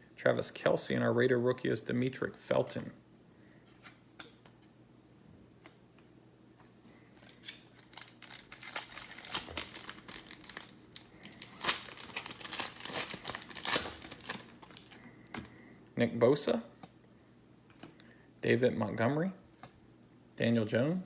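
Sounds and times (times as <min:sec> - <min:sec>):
foil wrapper crinkling: 0:07.1 - 0:15.5.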